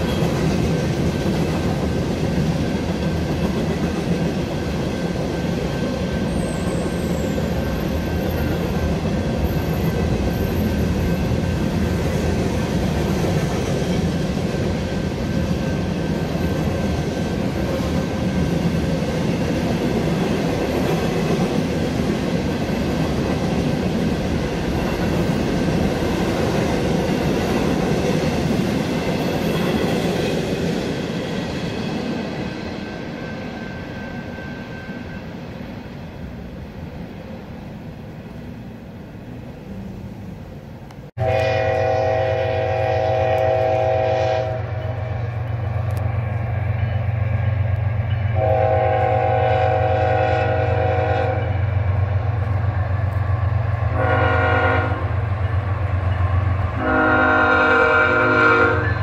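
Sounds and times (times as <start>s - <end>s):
freight train rumbling past: 0.0s - 59.0s
locomotive horn blast: 41.2s - 44.9s, 48.4s - 51.5s, 53.9s - 55.2s, 56.8s - 59.0s.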